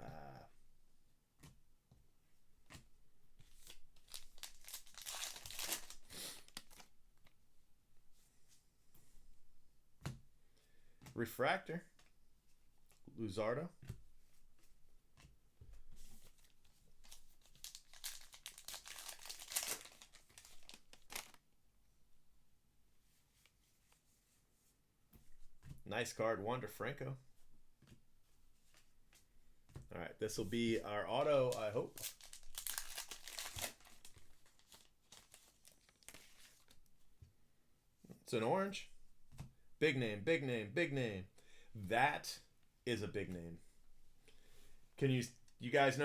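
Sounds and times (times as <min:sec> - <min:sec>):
cards rustling: 0:03.4 - 0:06.9, 0:16.0 - 0:21.4, 0:30.4 - 0:36.8
plastic wrapper tearing and crinkling: 0:03.5 - 0:06.9, 0:16.3 - 0:21.4, 0:31.4 - 0:36.8.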